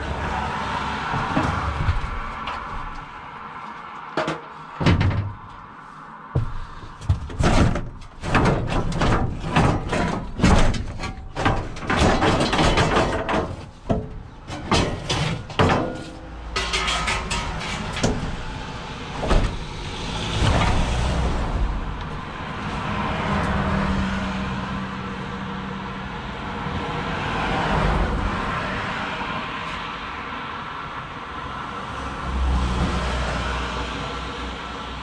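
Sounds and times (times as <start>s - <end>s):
objects knocking and clattering: 4.1s - 5.6s, 6.4s - 19.7s.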